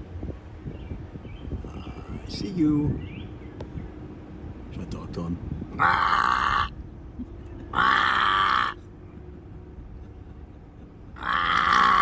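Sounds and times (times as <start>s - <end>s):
man making grunting calls: 5.8s - 6.7s, 11.2s - 12.0s.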